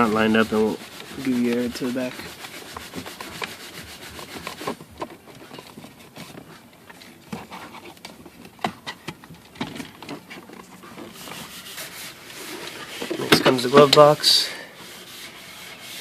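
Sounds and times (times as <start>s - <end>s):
plastic rubbing on plastic: 0.0s - 16.0s.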